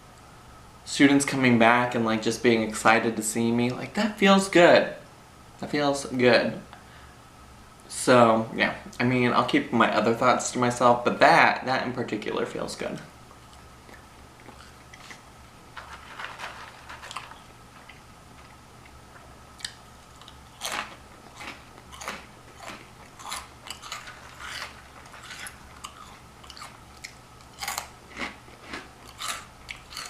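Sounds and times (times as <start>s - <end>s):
crunching and chewing snacks: 13.4s - 19.0s, 19.6s - 30.0s.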